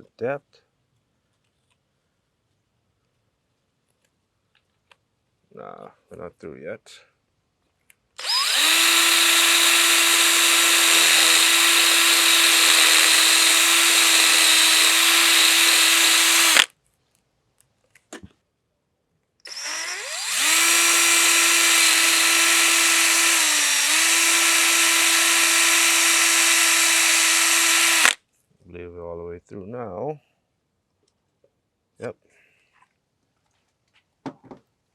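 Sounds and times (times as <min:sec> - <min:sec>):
power drill boring metal: 0:08.2 - 0:16.7, 0:19.5 - 0:28.2.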